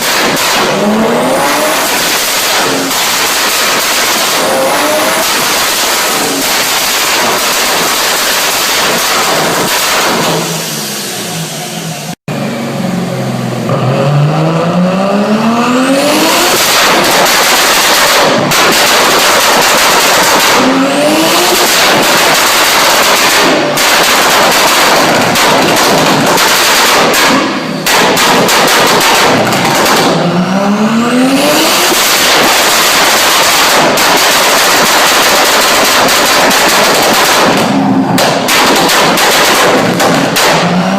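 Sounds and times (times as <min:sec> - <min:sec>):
exhaust popping and banging: 0:00.0 - 0:10.6, 0:16.1 - 0:40.9
car engines revving: 0:00.0 - 0:40.9.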